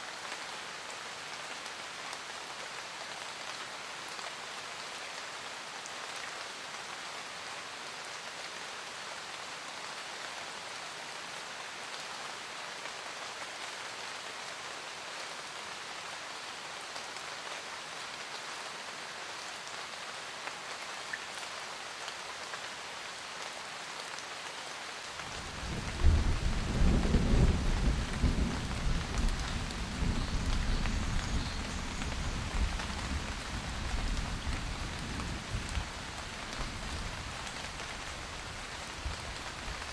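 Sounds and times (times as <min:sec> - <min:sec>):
rain pattering: 0:23.3 - 0:39.9
thunder rumble: 0:25.4 - 0:38.4.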